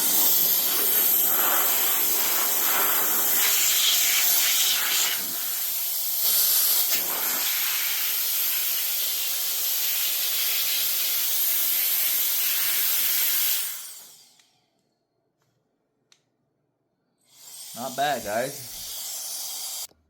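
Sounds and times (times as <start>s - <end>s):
air duster blowing with motor whine: 0.0s - 14.4s, 17.3s - 19.9s.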